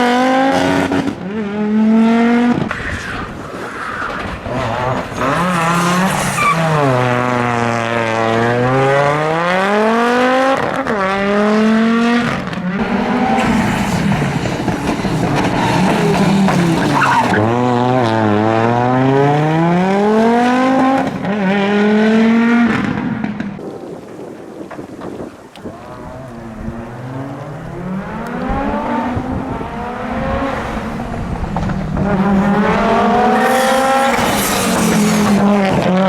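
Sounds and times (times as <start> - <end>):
rally car engine revving: 0.0 - 3.1, 4.0 - 23.5, 26.2 - 36.0.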